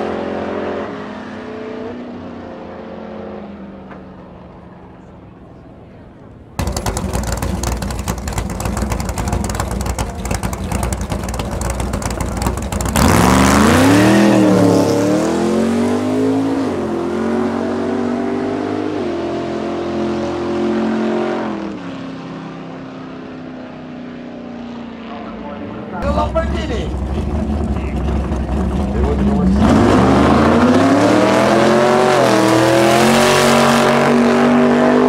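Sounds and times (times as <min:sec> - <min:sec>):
car engine launching and accelerating: 0:06.6 - 0:21.8, 0:26.0 - 0:35.0.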